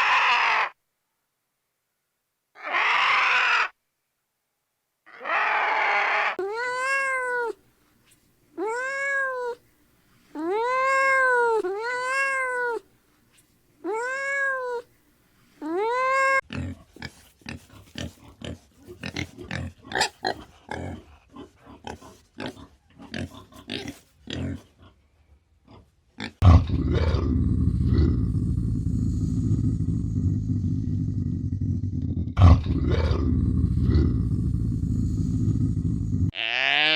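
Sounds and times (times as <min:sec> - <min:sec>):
cat meowing: 0:05.2 - 0:07.6, 0:08.6 - 0:09.6, 0:10.4 - 0:12.8, 0:13.8 - 0:14.9, 0:15.6 - 0:16.4.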